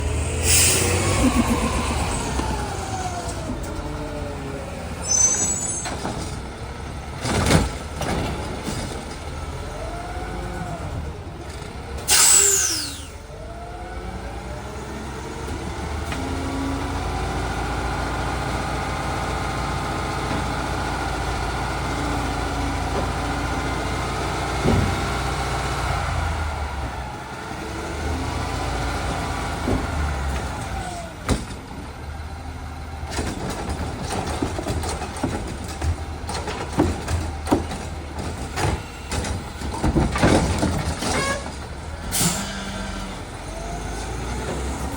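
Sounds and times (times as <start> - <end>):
garbage truck engine revving: 0.0 - 44.9
sharp hiss of air: 0.3 - 1.2, 12.1 - 13.1
clunks: 29.5 - 42.8.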